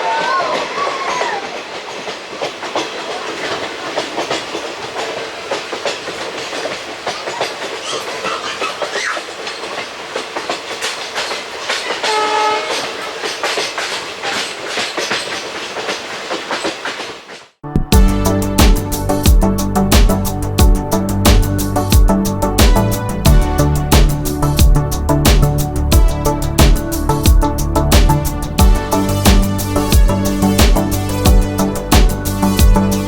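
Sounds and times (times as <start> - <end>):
train wheels rattling on rails: 0.0 - 33.0
clicks at rail joints: 0.1 - 17.5
train horn note: 12.0 - 13.1.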